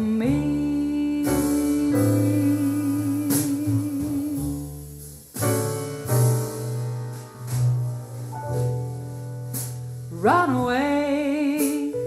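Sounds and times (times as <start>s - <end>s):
woman singing with vibrato: 0.0s - 4.7s, 10.1s - 12.0s
piano chords and bass: 0.0s - 12.0s.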